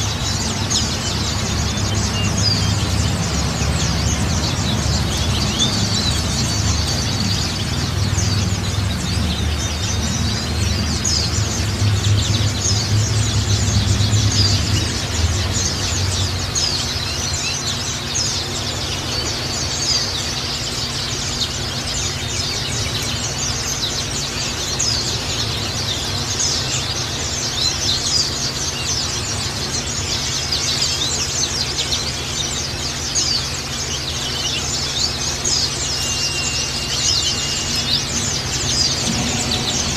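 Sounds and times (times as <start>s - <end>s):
birds chirping and trilling: 0.0s - 39.9s
low steady hum: 0.0s - 39.9s.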